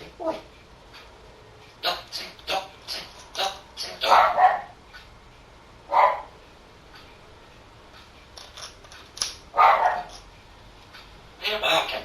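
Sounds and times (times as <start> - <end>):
dog-like barking: 4.0 - 4.8, 5.9 - 6.4, 9.6 - 10.2.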